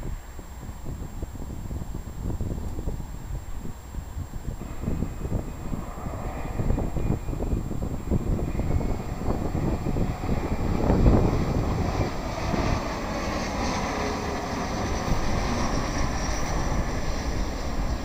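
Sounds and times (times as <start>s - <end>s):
high whine: 0.0s - 18.0s
jet engines rumbling: 0.0s - 18.0s
wind buffeting the microphone: 0.0s - 18.0s.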